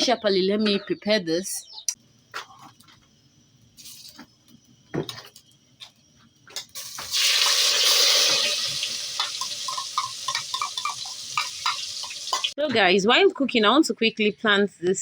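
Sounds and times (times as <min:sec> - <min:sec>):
hiss of food in hot pot: 0:06.8 - 0:10.4
kitchen work clicks and knocks: 0:09.2 - 0:12.6.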